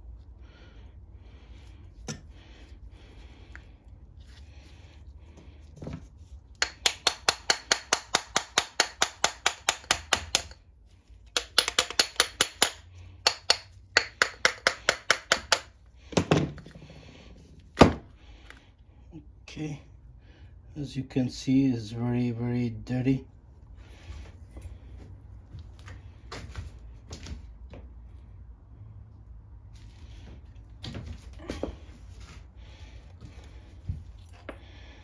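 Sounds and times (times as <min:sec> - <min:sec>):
hand ratchet clicking: 0:06.6 - 0:10.6, 0:11.3 - 0:15.8.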